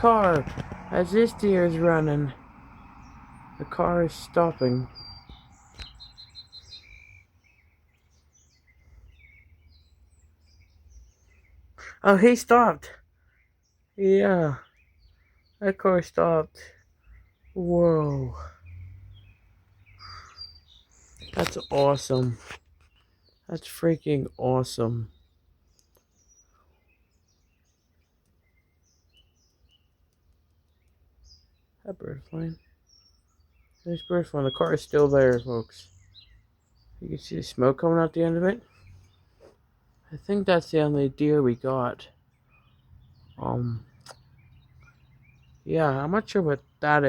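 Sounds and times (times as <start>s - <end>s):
low steady rumble: 0.0s - 5.7s
songbird chirps: 0.0s - 47.0s.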